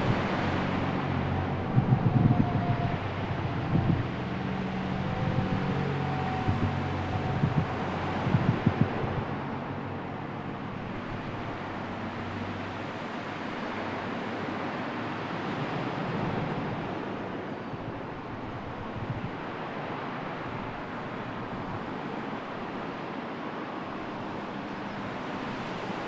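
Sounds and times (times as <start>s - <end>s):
wind rushing: 0.0s - 9.4s
sea surf: 0.0s - 26.0s
wind buffeting the microphone: 0.0s - 26.0s.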